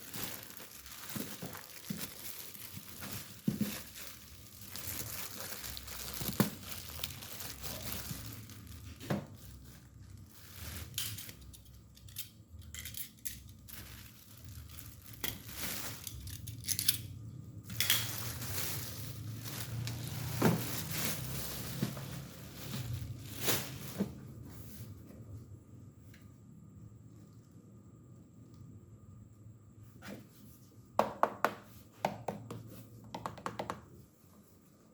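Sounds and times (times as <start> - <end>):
plastic wrap and cardboard crinkling: 0.0 - 25.1.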